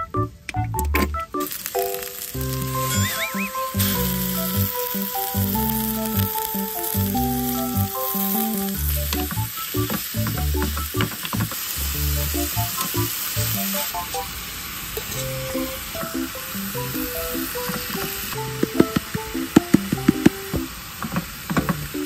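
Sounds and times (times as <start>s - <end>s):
plucky background music: 0.0s - 11.2s, 12.0s - 14.2s, 15.1s - 20.7s
meat sizzling in a frying pan: 1.4s - 18.8s.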